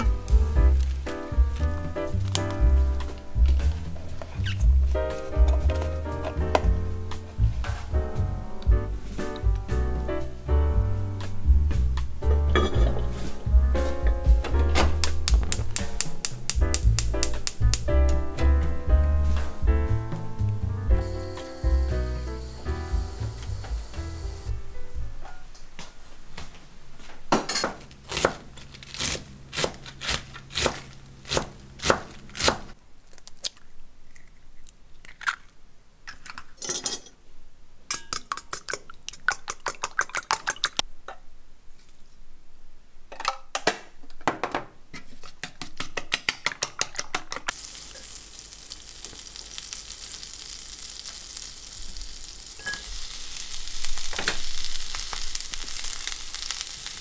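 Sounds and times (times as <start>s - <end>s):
cabbage sizzling in a skillet: 20.9s - 24.6s, 47.5s - 57.0s.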